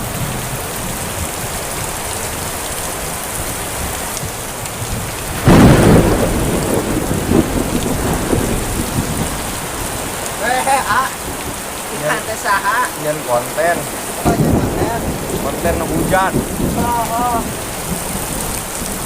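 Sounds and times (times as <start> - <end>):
heavy rain: 0.0 - 19.0
thunder clap rolling: 4.8 - 11.7, 13.4 - 19.0.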